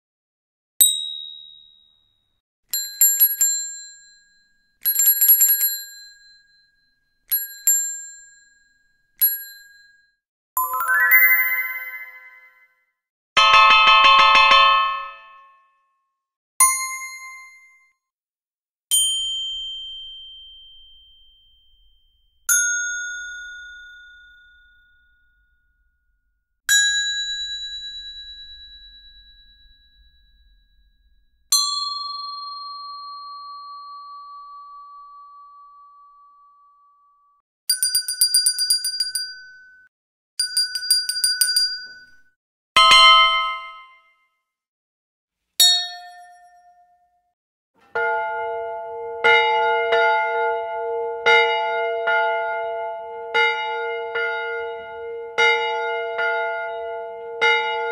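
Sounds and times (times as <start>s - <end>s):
trilling bell rings: 10.6s - 12.6s, 48.0s - 57.9s
struck bell dings: 19.2s - 25.2s, 26.7s - 32.9s, 47.9s - 57.9s.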